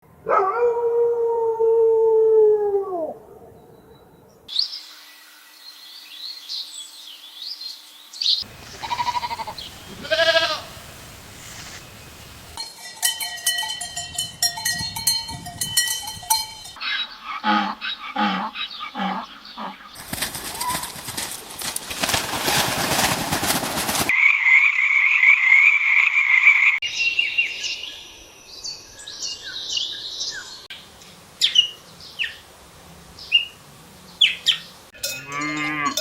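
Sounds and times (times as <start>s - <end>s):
high warbling birdsong: 3.3s - 12.6s, 16.7s - 20.8s, 24.1s - 32.4s, 33.2s - 35.8s
bird chirping: 3.4s - 12.6s
long farm animal call: 8.5s - 11.8s, 16.8s - 19.9s, 34.2s - 36.0s
quavering bleats: 8.6s - 10.8s, 35.0s - 36.0s
short pitched animal calls: 8.8s - 10.8s.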